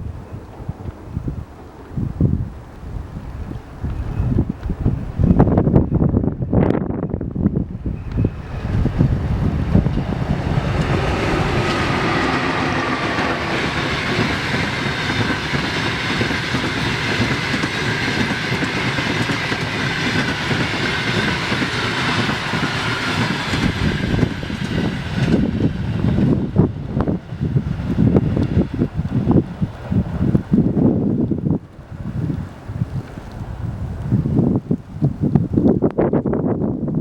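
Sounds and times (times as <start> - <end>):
wind buffeting microphone: 0.0 - 37.0
train passing at speed: 7.2 - 34.0.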